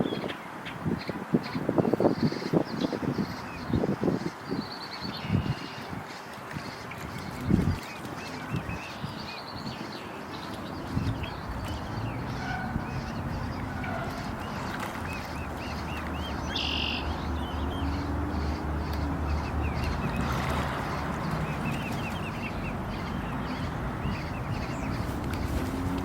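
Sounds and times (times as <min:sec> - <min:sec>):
cygnets peeping: 0:06.6 - 0:26.0.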